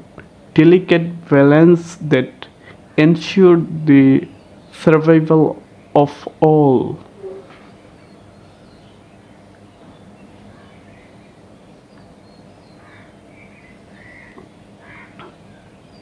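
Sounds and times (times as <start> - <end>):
soft bird chirps: 7.1 - 16.0.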